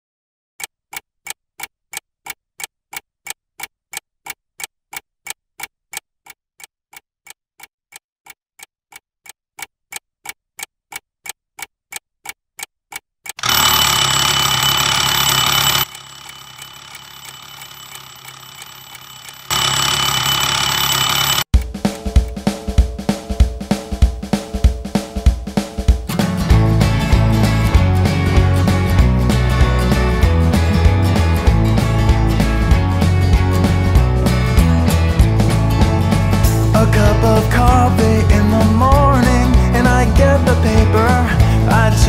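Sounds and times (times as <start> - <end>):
clock ticking: 0.6 - 42.0
alarm clock ringing: 13.4 - 21.5.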